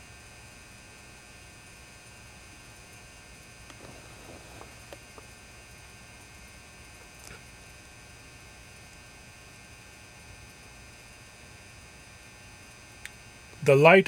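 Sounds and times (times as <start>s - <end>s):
lamp ballast humming: 3.6s - 7.4s.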